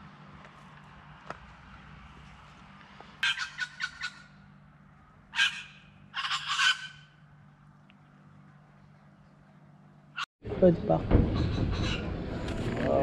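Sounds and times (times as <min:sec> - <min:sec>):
bird harsh raspy calls: 0:03.2 - 0:04.5, 0:05.2 - 0:07.3, 0:11.3 - 0:12.1.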